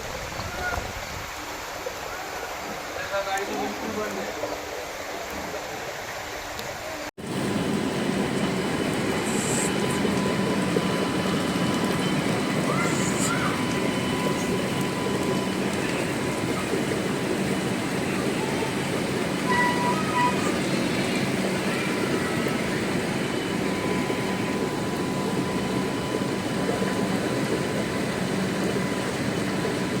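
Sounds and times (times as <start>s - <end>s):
train rumbling along track: 6.8s - 30.0s.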